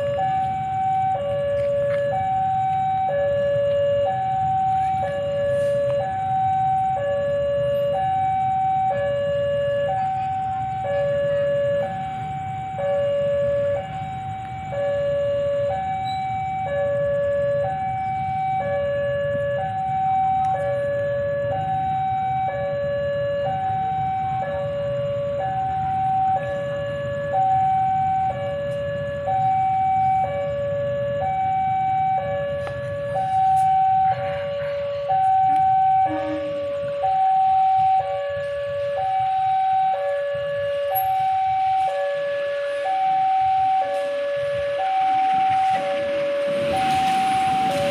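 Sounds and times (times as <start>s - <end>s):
level crossing alarm two tones: 0.0s - 47.9s.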